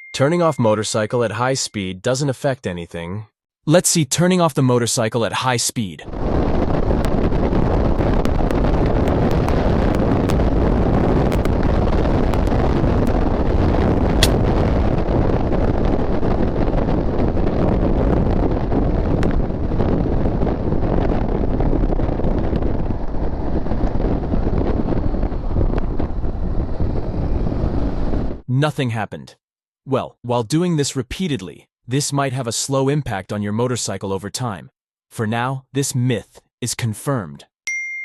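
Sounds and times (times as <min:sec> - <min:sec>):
wind buffeting microphone: 0:06.1 - 0:28.4
sharp click: 0:14.2 - 0:14.4.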